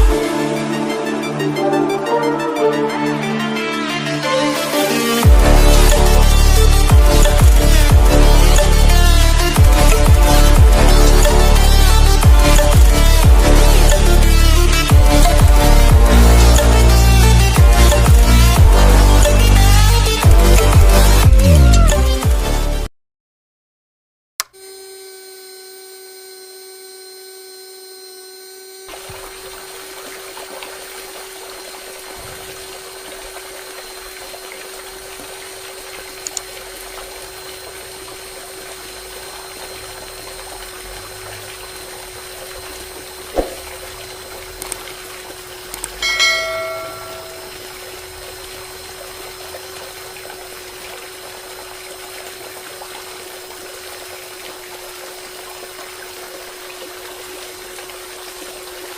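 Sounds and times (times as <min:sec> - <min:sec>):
small motor whining: 0:03.9 - 0:22.0, 0:24.4 - 0:58.9
water flowing and splashing: 0:28.9 - 0:58.9
ringing clink: 0:46.0 - 0:47.6.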